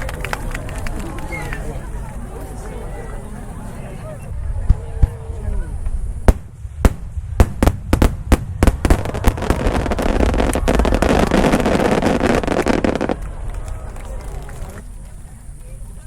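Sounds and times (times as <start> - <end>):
firework crackle: 6.2 - 15.1.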